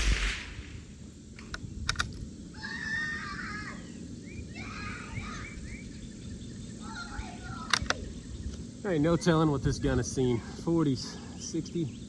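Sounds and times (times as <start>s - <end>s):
sharp clicks: 1.4s - 2.2s, 7.6s - 8.6s.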